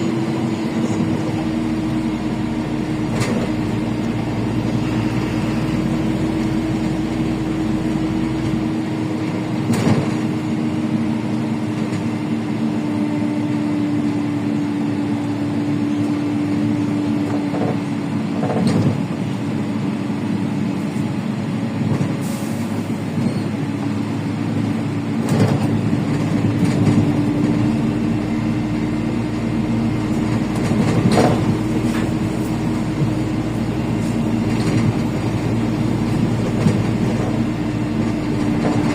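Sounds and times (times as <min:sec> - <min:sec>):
bus engine drone: 0:00.0 - 0:38.9
road noise: 0:00.0 - 0:38.9
bus body knocks and rattles: 0:00.1 - 0:04.8, 0:05.8 - 0:10.8, 0:16.4 - 0:19.6, 0:21.7 - 0:22.3, 0:25.0 - 0:38.9.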